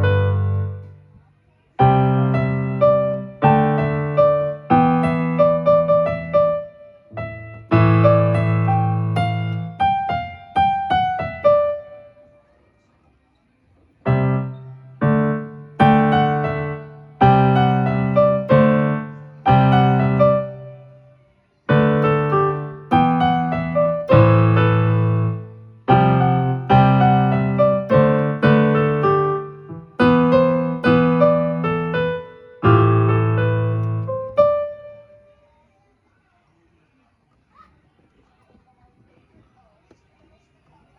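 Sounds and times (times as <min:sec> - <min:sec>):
electronic keyboard piano chords: 0:00.0 - 0:01.0, 0:01.8 - 0:12.2, 0:14.1 - 0:21.1, 0:21.7 - 0:35.4.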